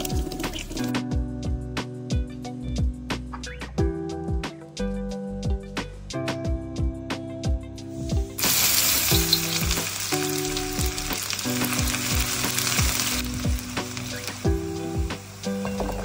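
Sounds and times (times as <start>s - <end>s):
onions sizzling in hot oil: 7.9s - 16.0s.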